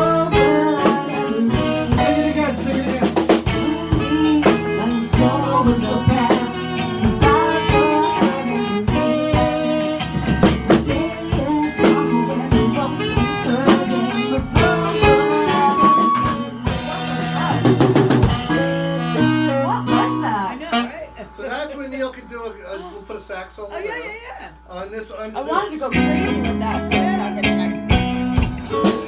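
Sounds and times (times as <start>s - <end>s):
drum kit rimshots: 0.0s - 20.8s, 26.9s - 29.0s
live rock band playing: 0.0s - 21.0s, 25.9s - 29.0s.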